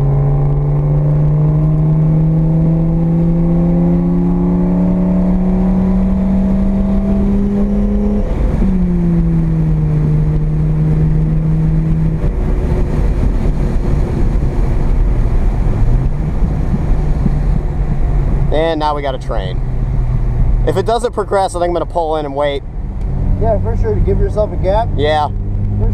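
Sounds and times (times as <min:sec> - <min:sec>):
rotary engine from inside car: 0:00.0 - 0:18.6
road and tyre noise: 0:00.0 - 0:25.9.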